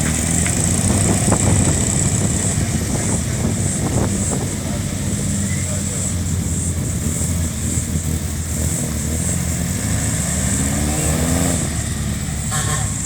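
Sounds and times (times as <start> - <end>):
old car engine revving: 0.0 - 13.0.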